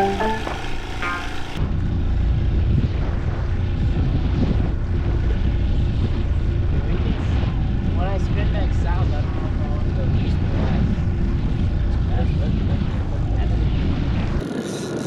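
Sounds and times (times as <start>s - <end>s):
boat engine rumbling: 0.0s - 1.6s
plucked music notes: 0.0s - 1.6s.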